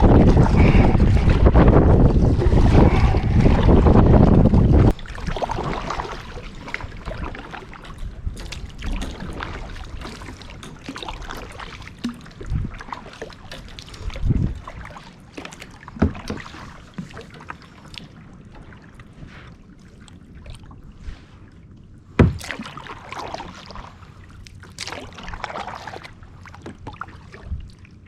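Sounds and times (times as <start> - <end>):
water washing against kayak hull: 0.0 - 21.5, 22.1 - 27.8
knocks on kayak: 22.2 - 22.5
low thumps: 22.2 - 22.5.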